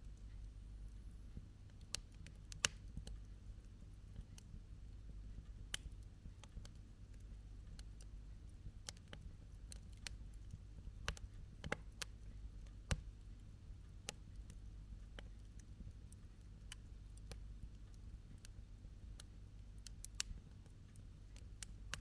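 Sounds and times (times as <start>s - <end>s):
campfire crackling and popping: 1.7s - 3.2s, 5.7s - 8.1s, 8.8s - 12.2s, 19.2s - 20.6s, 21.3s - 22.0s.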